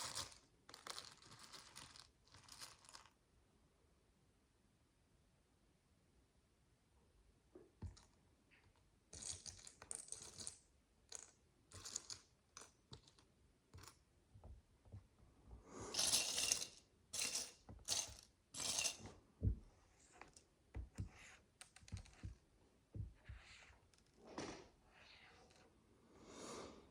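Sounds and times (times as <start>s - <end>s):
plastic bricks rattling and clicking: 16.0s - 19.0s.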